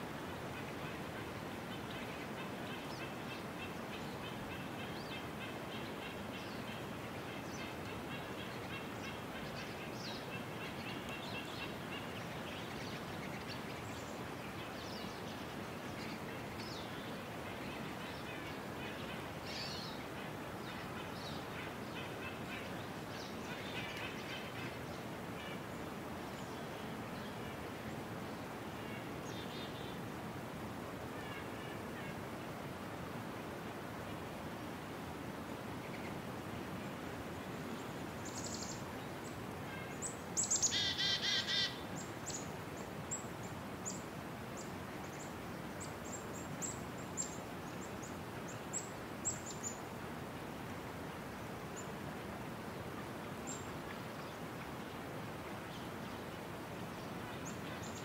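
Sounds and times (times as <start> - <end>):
steady outdoor hiss: 0.0 - 58.0
small birds chirping: 37.8 - 44.0.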